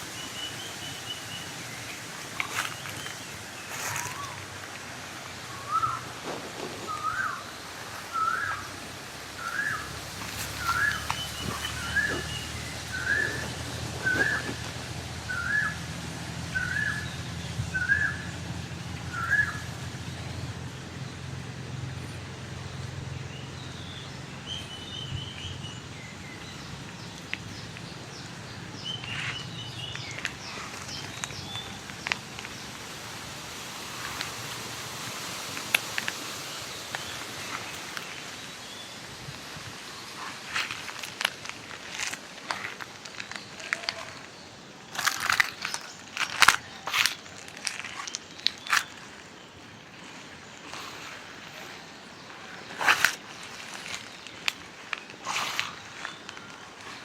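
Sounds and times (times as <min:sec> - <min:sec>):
wind rumble on microphone: 0:09.9 - 0:22.5
bird calling upward notes: 0:15.3 - 0:15.8.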